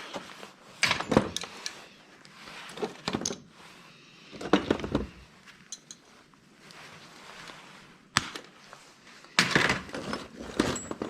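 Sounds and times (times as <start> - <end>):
scrap parts clattering: 0.7 - 1.8, 9.4 - 11.0.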